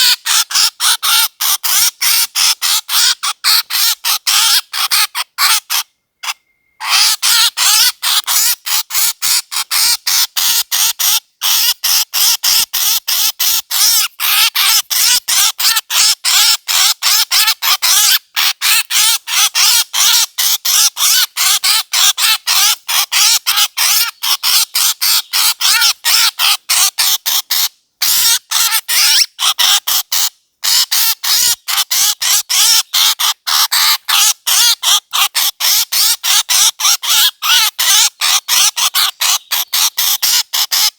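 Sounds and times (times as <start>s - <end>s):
harsh squawking bird call: 0.0s - 8.6s, 13.8s - 40.9s.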